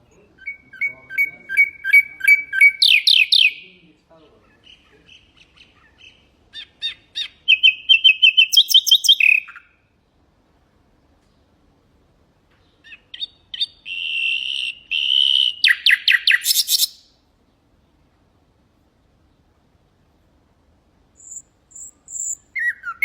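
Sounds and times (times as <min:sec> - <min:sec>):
nightingale singing: 0:00.0 - 0:10.3, 0:12.5 - 0:18.0, 0:21.2 - 0:23.0.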